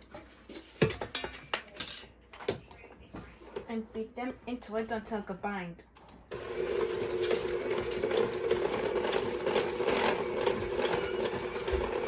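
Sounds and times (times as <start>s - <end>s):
beaters clattering against bowl: 6.3s - 12.0s
electric mixer running: 6.3s - 12.0s.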